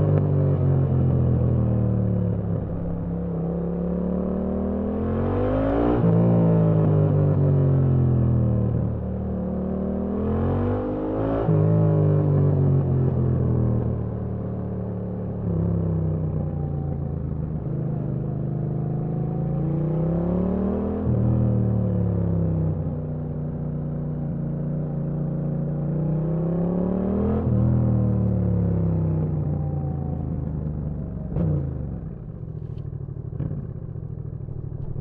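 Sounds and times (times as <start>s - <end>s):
motorcycle engine revving: 25.0s - 35.0s.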